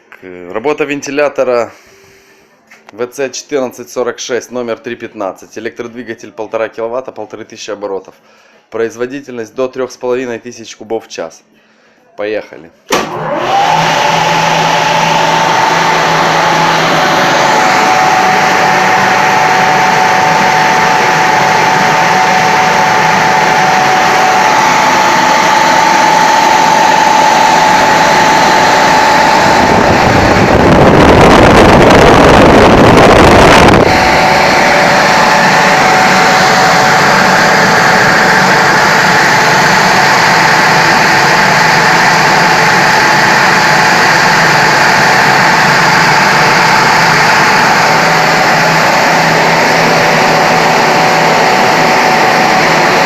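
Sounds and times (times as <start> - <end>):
fan air rushing with steady tone: 1.6 - 2.7, 12.9 - 53.0.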